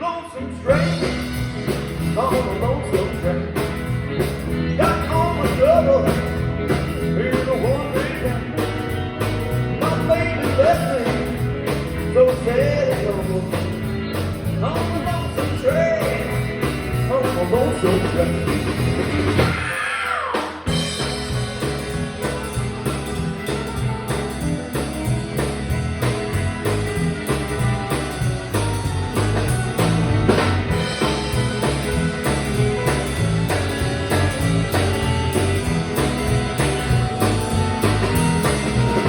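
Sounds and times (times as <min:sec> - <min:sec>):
electric guitar: 0:00.0 - 0:39.0
walking bass line: 0:00.4 - 0:19.7, 0:20.7 - 0:39.0
drum kit beat: 0:00.7 - 0:39.0.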